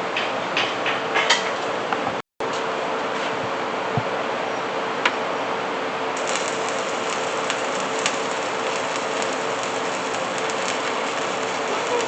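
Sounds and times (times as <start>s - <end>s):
steady hum: 2.8s - 12.0s
welding arc crackling and sizzling: 6.2s - 12.0s.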